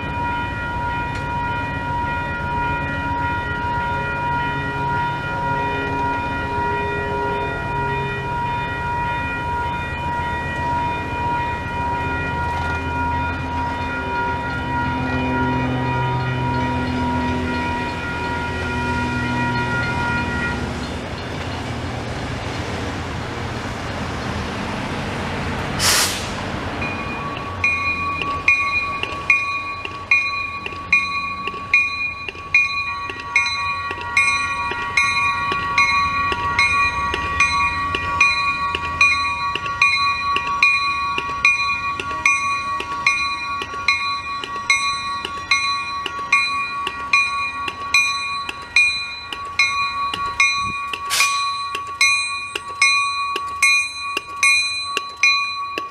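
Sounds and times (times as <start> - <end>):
railroad bell ringing: 0.0 - 55.9
train rumbling: 0.0 - 55.9
short hiss: 25.8 - 26.5, 51.1 - 51.4.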